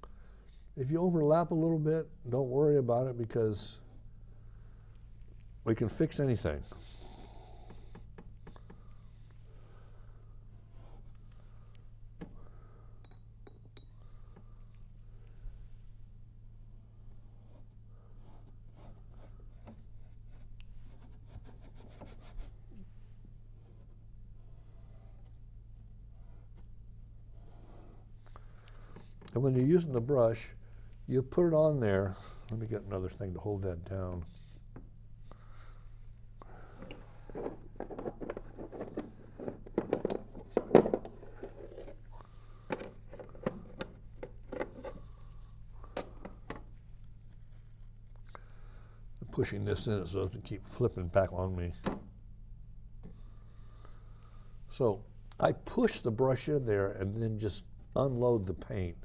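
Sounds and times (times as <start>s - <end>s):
faint low hum: 0.0s - 59.0s
rustling and scraping: 35.6s - 48.2s
objects clicking and knocking: 36.8s - 42.0s.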